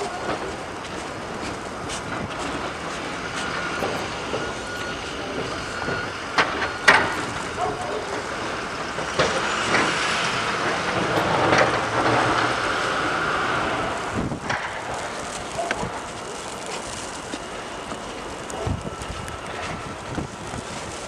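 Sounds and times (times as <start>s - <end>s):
vehicle passing rushing noise: 8.2s - 16.0s.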